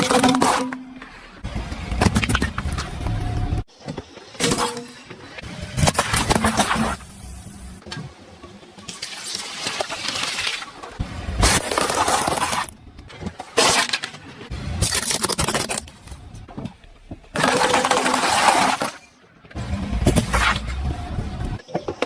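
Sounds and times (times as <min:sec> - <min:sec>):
objects crushed under car tyres: 0:01.7 - 0:03.7, 0:09.1 - 0:22.0.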